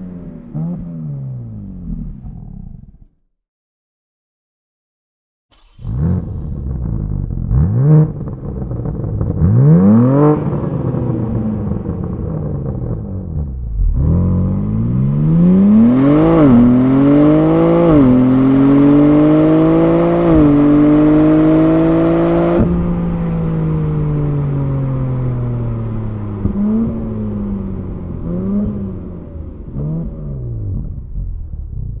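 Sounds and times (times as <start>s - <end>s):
car engine revving: 5.5s - 32.0s
car accelerating through gears: 5.6s - 31.0s.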